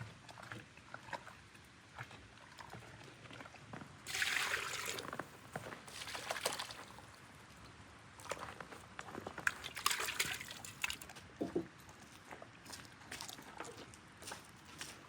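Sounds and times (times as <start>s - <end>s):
liquid pouring: 4.1s - 7.1s, 9.5s - 11.0s.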